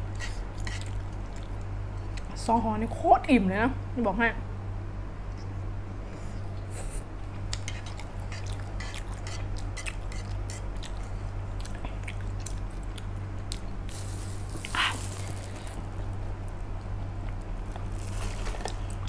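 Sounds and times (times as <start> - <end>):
person chewing noodles: 0.1 - 2.3, 6.7 - 19.0.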